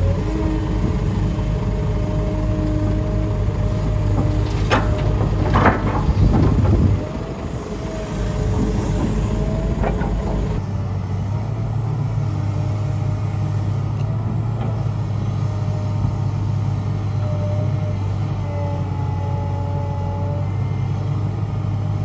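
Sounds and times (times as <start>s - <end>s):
diesel machinery running: 0.0s - 22.0s
rock and metal clanks: 4.2s - 10.6s.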